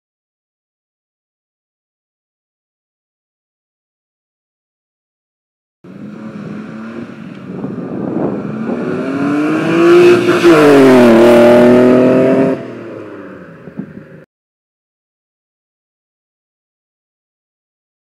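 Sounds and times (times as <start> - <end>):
car engine accelerating: 5.9 - 14.2.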